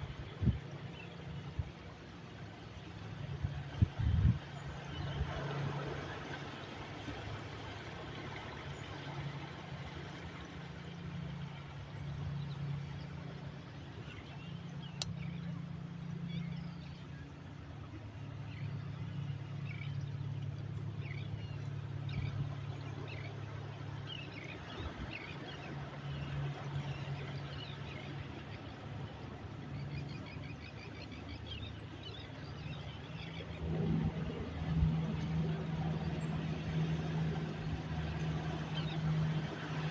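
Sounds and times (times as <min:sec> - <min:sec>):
sea rumble and wash: 0:00.0 - 0:39.9
birds chirping: 0:10.2 - 0:39.9.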